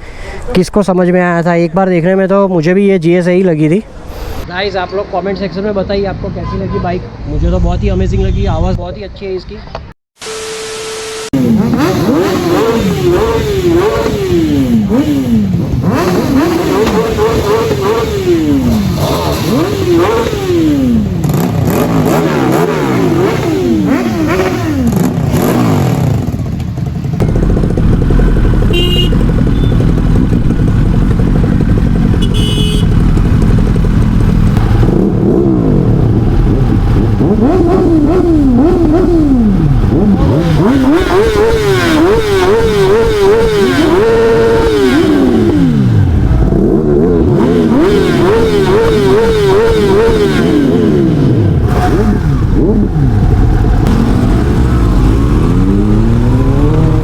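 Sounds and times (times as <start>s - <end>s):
motorcycle engines revving: 11.2s - 57.0s.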